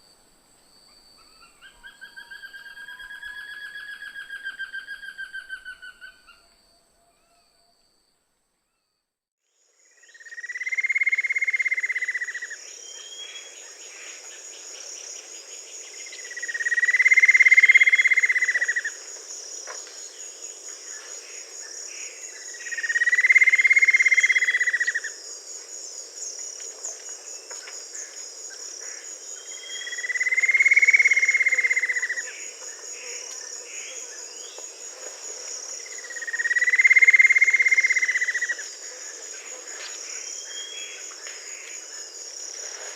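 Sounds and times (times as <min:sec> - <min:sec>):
insects chorus: 0:00.0 - 0:42.9.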